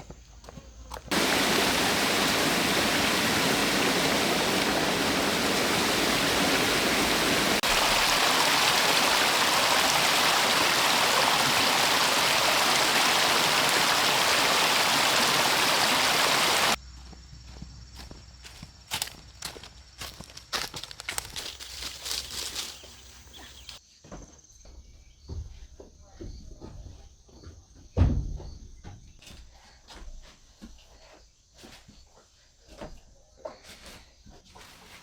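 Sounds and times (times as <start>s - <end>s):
rushing water: 1.1s - 16.8s.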